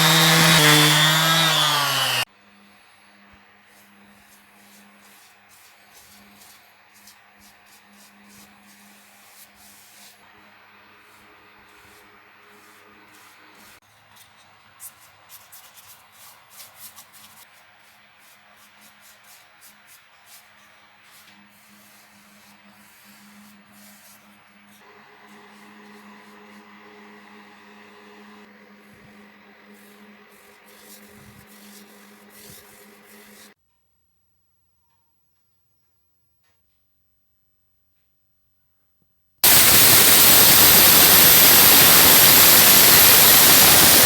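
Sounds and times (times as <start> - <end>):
abrasive scratching and rubbing: 29.7 - 33.6.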